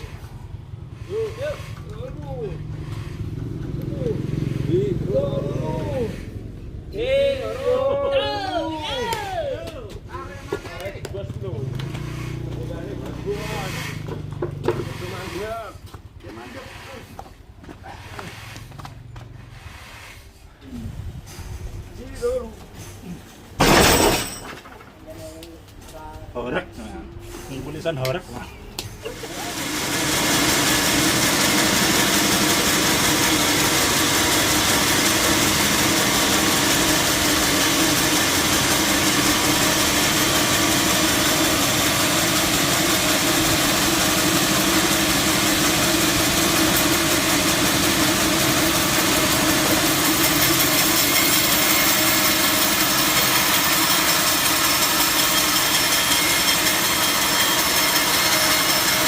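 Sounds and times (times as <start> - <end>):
sawmill machinery running: 10.1 - 19.9, 29.1 - 59.0.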